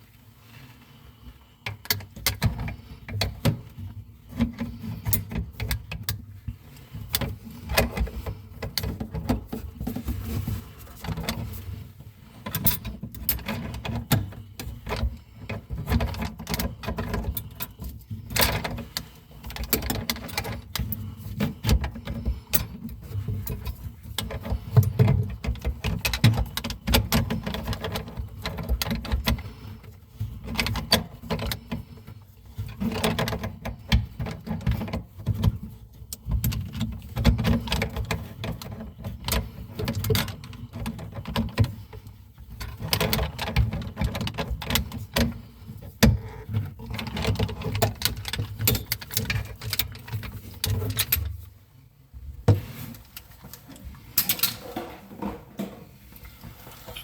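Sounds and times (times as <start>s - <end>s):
hand tools clicking and rattling: 12.4s - 51.4s, 53.5s - 55.8s.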